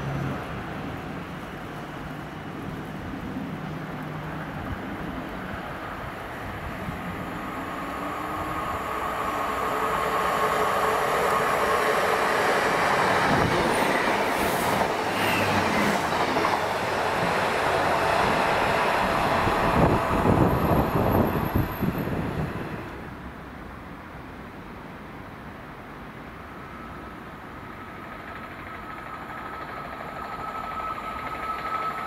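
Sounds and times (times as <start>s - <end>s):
diesel train passing: 0.0s - 24.8s, 25.7s - 32.0s.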